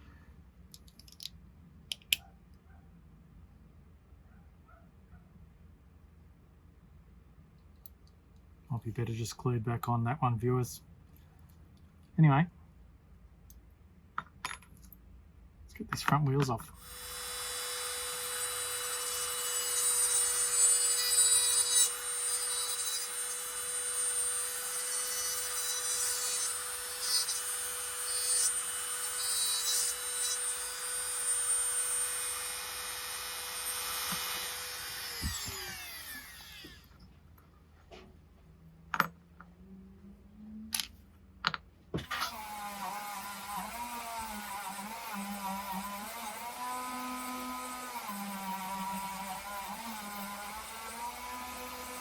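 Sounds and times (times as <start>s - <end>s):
small power tool running: 16.8s - 36.9s.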